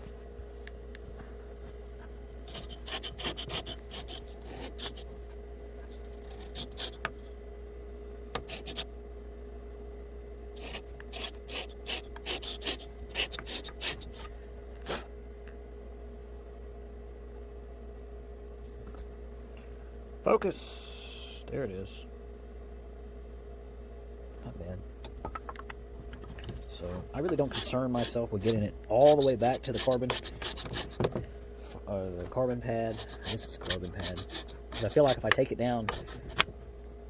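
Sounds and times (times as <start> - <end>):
faint steady hum: 0.0 - 37.0
blade scraping leather: 1.2 - 7.2, 8.4 - 8.9, 10.6 - 15.1, 27.2 - 36.5.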